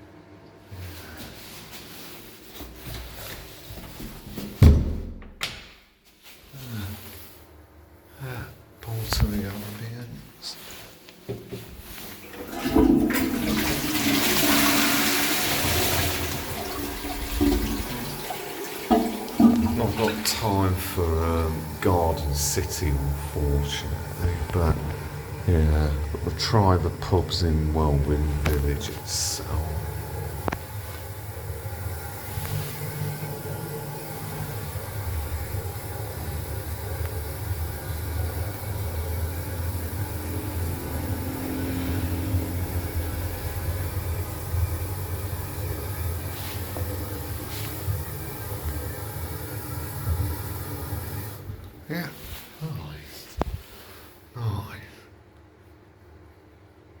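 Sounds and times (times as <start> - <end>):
toilet flushing: 11.5 - 52.5
toilet refilling: 11.5 - 52.5
moving vehicle rumble and hiss: 15.7 - 51.1.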